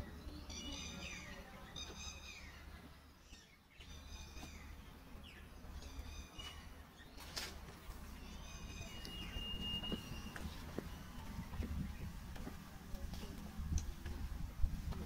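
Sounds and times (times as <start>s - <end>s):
bird calling: 8.1s - 11.5s.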